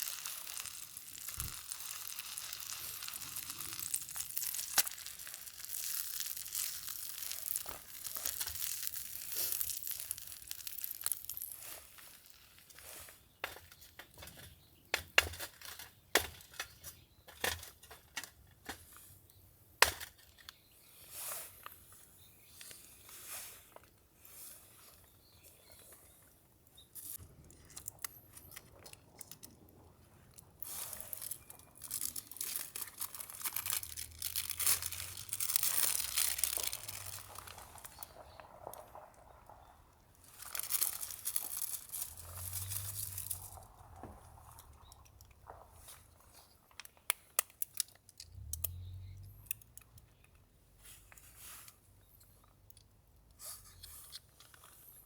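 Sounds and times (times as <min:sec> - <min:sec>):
paper or plastic crinkling: 0:00.0 - 0:14.3, 0:30.3 - 0:39.3, 0:40.2 - 0:45.2.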